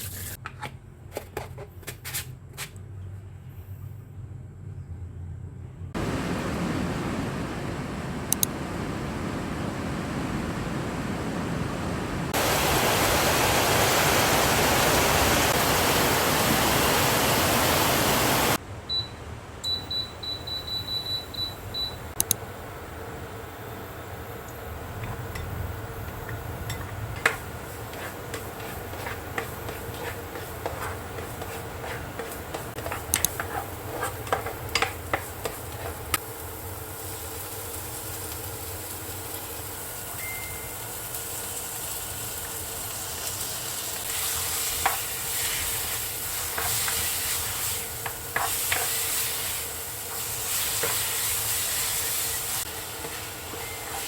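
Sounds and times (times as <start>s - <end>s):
food sizzling in pan: 11.9s - 18.6s, 22.5s - 54.0s.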